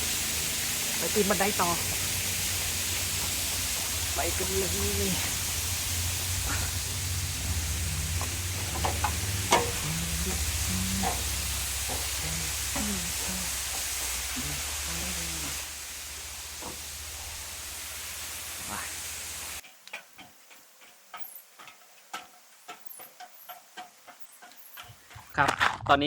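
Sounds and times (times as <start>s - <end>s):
waterfall rushing hiss: 0.0s - 19.6s.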